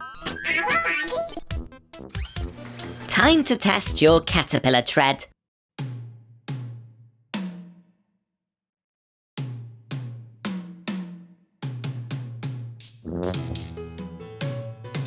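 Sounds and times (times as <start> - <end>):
background music with drum hits: 1.4 - 4.4, 5.8 - 7.8, 9.4 - 15.0.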